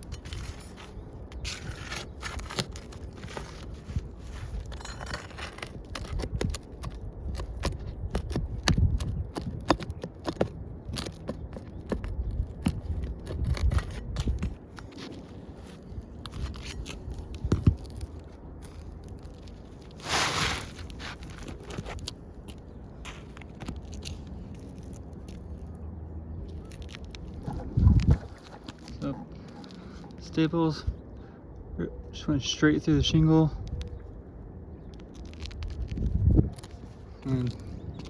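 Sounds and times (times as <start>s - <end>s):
roof shingles scraping and clicking: 0.0s - 25.8s, 26.4s - 30.6s.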